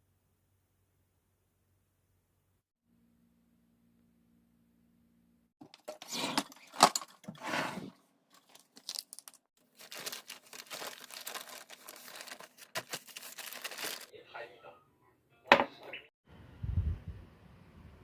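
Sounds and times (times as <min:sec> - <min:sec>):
plastic packaging rustling: 0:05.8 - 0:07.4, 0:08.3 - 0:14.1
plastic crinkling: 0:08.3 - 0:14.1.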